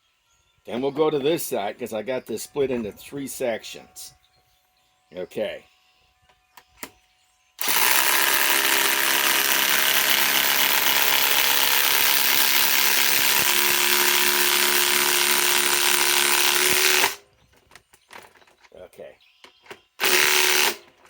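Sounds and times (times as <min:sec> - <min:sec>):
impact wrench hammering: 0:07.6 - 0:17.2, 0:20.0 - 0:20.9.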